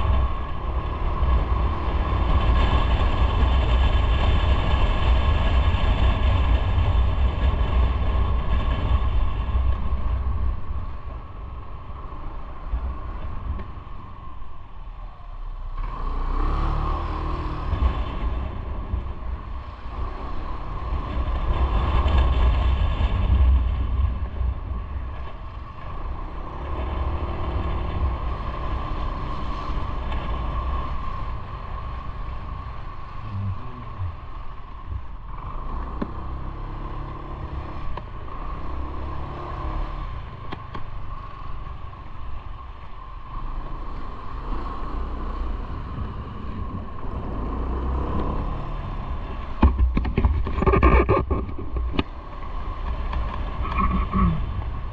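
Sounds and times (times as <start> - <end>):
wind and road noise: 0.0 - 54.9
motorcycle engine running: 16.9 - 54.9.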